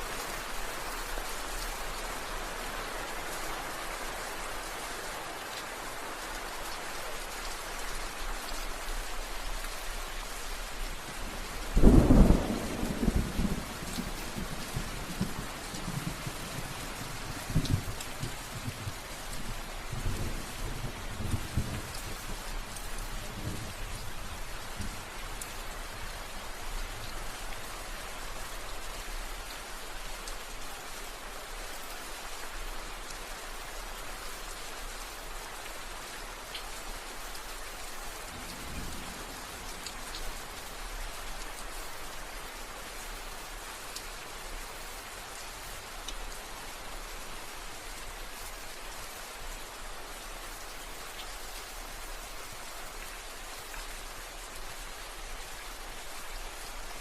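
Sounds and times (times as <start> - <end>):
rain falling: 0.0 - 57.0
distant thunder rumbles: 11.8 - 19.0.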